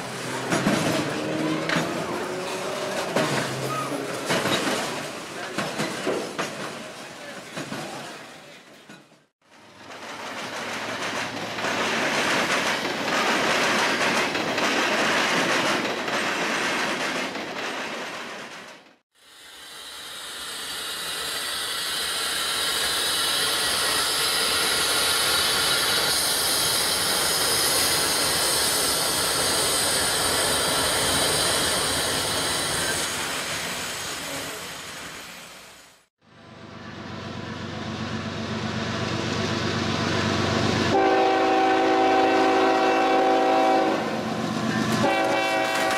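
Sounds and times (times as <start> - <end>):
train wheels clacking: 9.8 - 18.8
high-pitched wheel hiss: 19.2 - 32.9
diesel locomotive running: 19.3 - 45.9.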